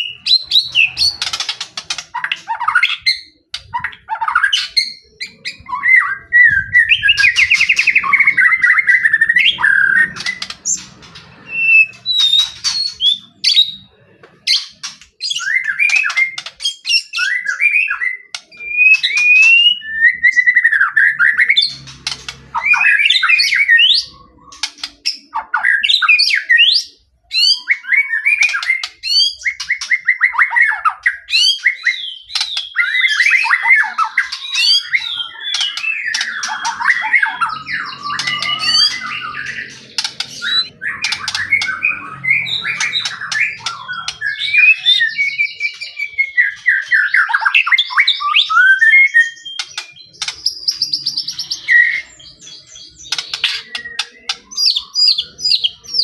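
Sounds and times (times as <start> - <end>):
shama singing whistled trills: 2.1 - 56.0.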